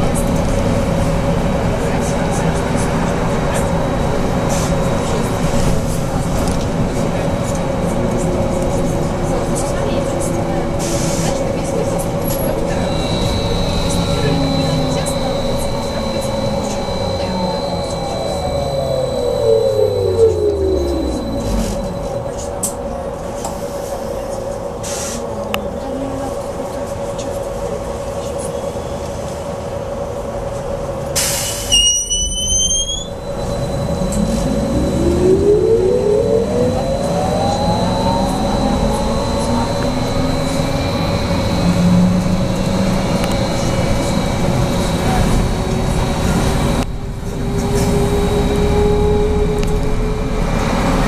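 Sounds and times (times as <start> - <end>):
trolleybus electrical hum: 0.0 - 51.0
traction motor whine rising: 12.2 - 22.5, 33.1 - 51.0.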